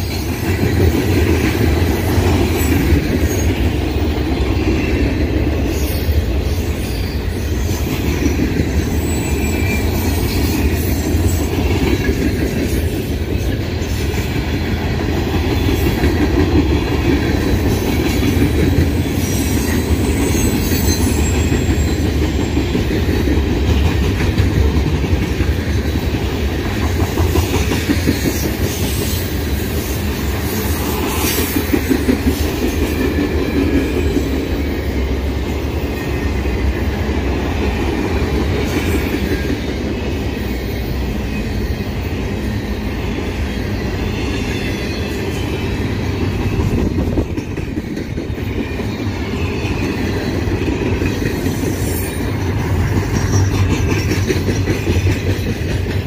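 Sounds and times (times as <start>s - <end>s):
steel wheels on rails: 0.0s - 56.0s
wheels clicking over rail joints: 46.2s - 56.0s.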